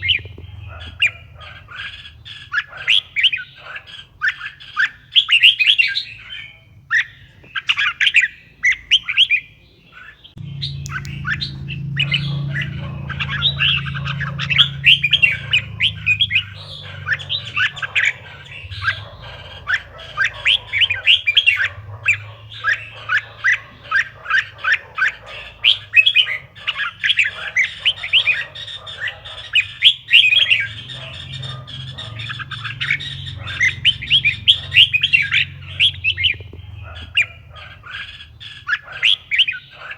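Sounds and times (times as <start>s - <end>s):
bird chirping rapidly: 0.0s - 39.9s
low steady hum: 10.4s - 23.6s.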